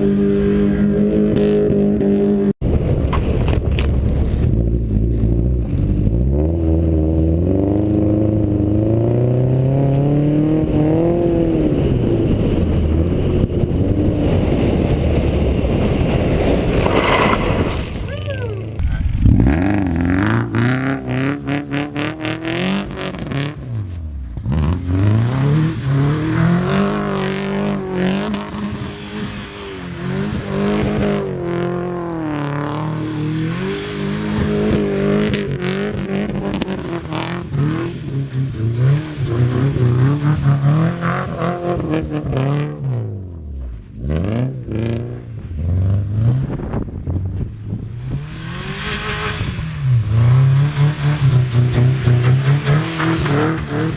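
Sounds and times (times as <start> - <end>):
car engine revving: 0.0 - 53.9.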